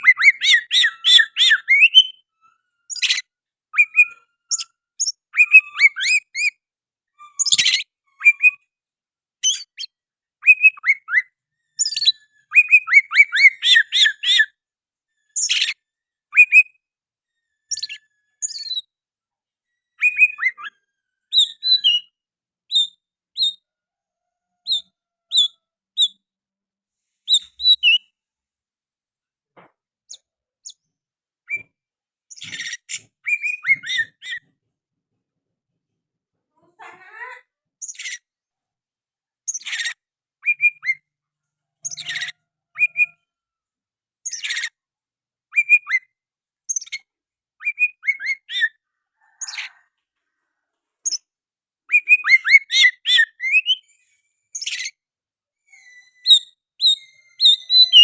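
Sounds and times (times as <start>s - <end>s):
bird singing whistles and chirps: 0.0s - 2.3s, 2.9s - 6.5s, 9.4s - 14.6s, 15.3s - 16.8s, 17.7s - 18.9s, 19.9s - 23.6s, 27.3s - 28.1s, 32.3s - 34.4s, 39.5s - 41.1s, 41.9s - 43.2s, 45.5s - 46.1s, 47.6s - 48.8s, 51.9s - 54.0s, 55.6s - 58.0s.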